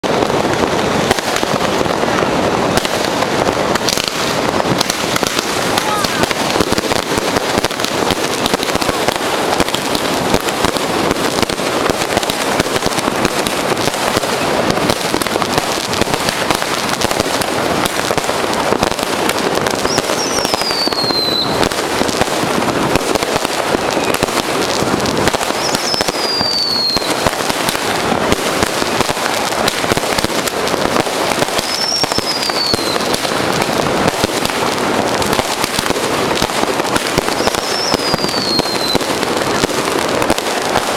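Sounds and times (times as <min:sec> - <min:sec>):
firecrackers crackling: 0:00.0 - 0:40.9
falling firework whistle: 0:19.7 - 0:22.0, 0:22.6 - 0:24.5, 0:25.2 - 0:27.3, 0:30.9 - 0:34.5, 0:37.0 - 0:39.1.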